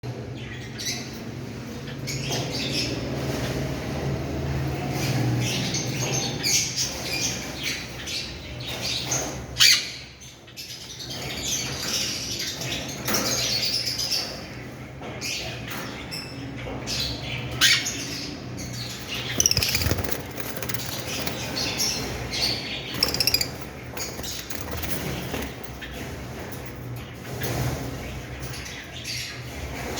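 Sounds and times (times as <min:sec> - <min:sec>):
birds chirping and squawking: 0:00.1 - 0:29.9
wings flapping: 0:19.2 - 0:21.9, 0:23.0 - 0:25.7.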